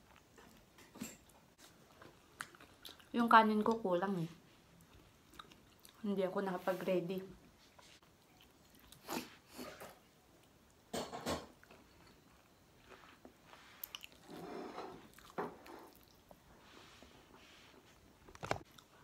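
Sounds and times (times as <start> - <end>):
person chewing and biting: 5.2 - 6.0.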